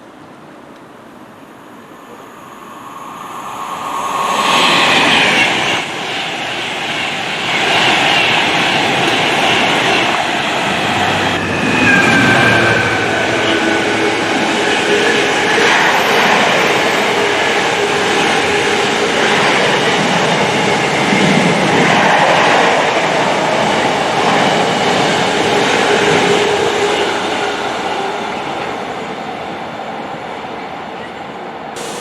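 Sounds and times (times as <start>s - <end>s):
train passing: 0.0s - 32.0s
wheels rushing on rail: 0.0s - 32.0s
high metallic squeal: 11.4s - 20.2s.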